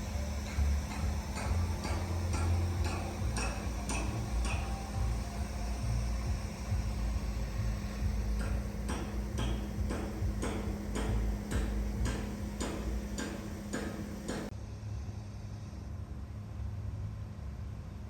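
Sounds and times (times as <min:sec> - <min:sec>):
machine hum and low rumble: 0:00.0 - 0:18.0
hammering knocks: 0:00.1 - 0:05.2, 0:08.2 - 0:14.5.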